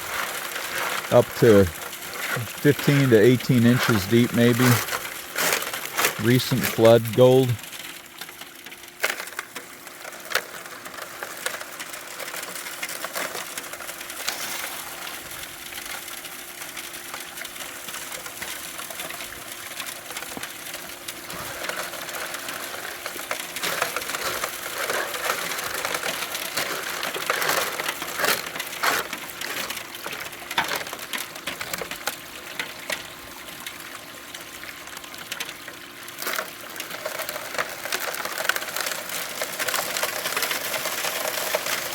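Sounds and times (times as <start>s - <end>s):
gravel rattling and scraping: 0.0s - 2.6s, 18.6s - 32.2s, 36.2s - 41.9s.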